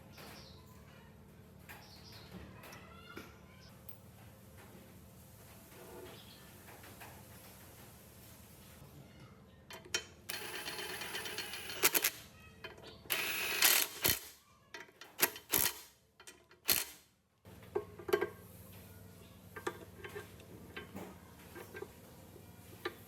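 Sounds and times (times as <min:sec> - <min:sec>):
metallic clicks and knocks: 0:14.8 - 0:17.0.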